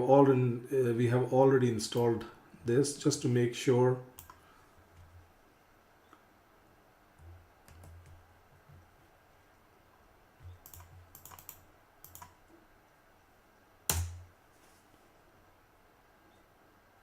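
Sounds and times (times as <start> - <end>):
keyboard typing: 4.2 - 4.4, 7.2 - 8.8, 10.4 - 12.4.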